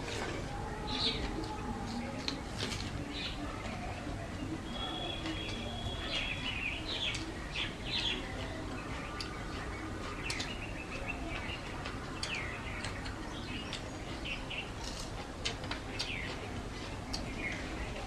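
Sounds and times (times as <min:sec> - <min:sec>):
bird chirps: 0:04.6 - 0:14.7.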